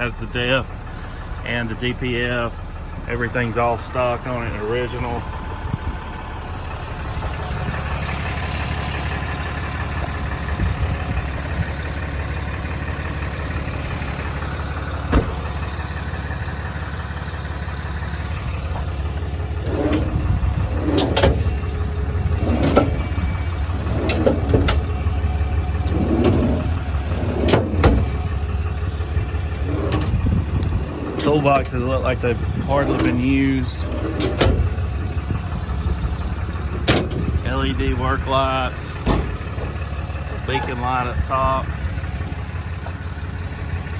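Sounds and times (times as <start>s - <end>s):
vehicle engine idling: 0.0s - 43.9s
metal latches clicking and clanking: 19.6s - 21.6s, 22.4s - 24.9s, 33.8s - 34.7s.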